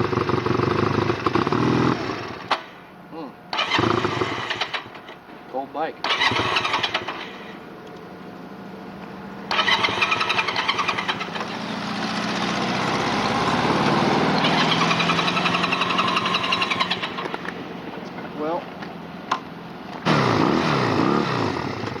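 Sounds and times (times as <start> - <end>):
motorcycle engine running: 0.0 - 2.7, 3.6 - 5.2, 8.2 - 22.0
pulsing engine sound: 6.0 - 17.9.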